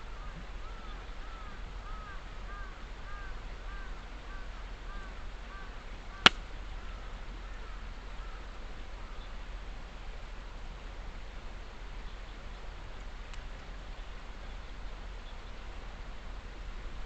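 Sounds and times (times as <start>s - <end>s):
campfire wood popping: 6.2s - 6.5s.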